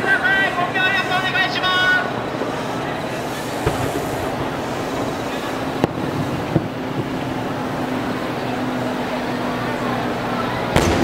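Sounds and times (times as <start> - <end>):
train and station platform din: 0.0 - 11.0
distant firework bangs: 2.4 - 9.4, 10.5 - 11.0.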